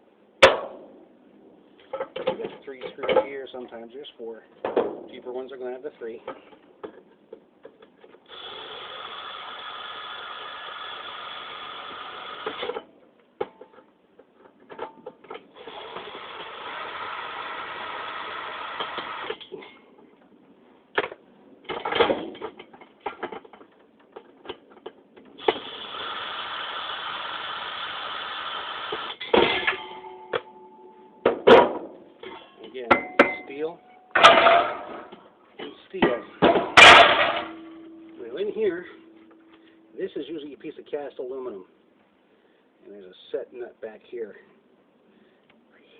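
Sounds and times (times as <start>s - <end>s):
power drill running: 8.3s - 12.7s, 15.6s - 19.4s, 25.4s - 29.2s
metal parts clattering: 34.2s - 35.2s, 36.4s - 37.9s.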